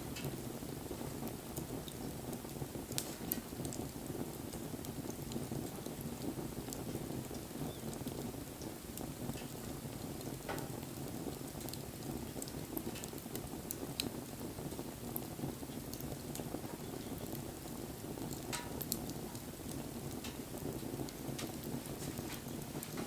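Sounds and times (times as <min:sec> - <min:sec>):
fire crackles and snaps: 0:00.0 - 0:23.0
low rush of flames: 0:00.0 - 0:23.0
sharp fire pop: 0:03.0 - 0:03.5, 0:10.5 - 0:10.7, 0:18.5 - 0:19.0.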